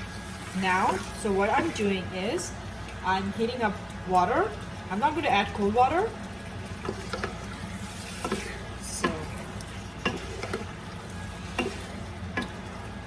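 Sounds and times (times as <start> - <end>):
food sizzling: 0.0 - 13.0
spatula scraping a frying pan: 6.8 - 12.9.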